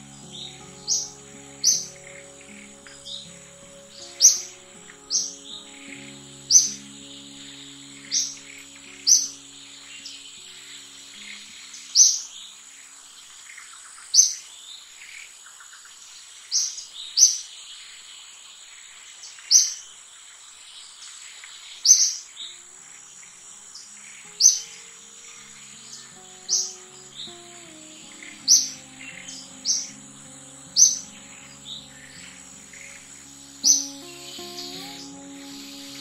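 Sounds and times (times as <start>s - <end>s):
background music: 0.0s - 12.5s, 22.4s - 36.0s
high insect hum: 0.0s - 14.4s, 21.3s - 36.0s
bird chirping: 0.0s - 36.0s.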